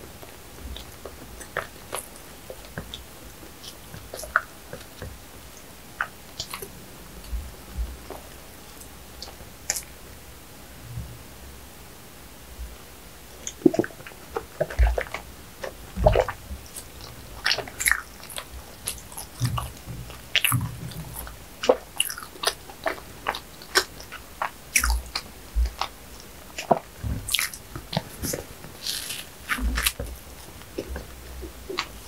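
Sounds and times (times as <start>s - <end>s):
person chewing bread: 0.2s - 9.9s, 13.4s - 32.0s
soft low thumps: 6.9s - 8.1s.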